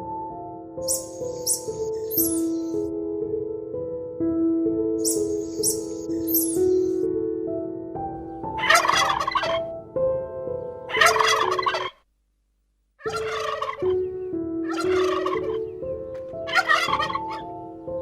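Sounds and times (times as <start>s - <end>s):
soft music of held notes: 0.0s - 11.8s, 13.0s - 18.0s
bird calling in noisy bursts: 0.9s - 2.7s.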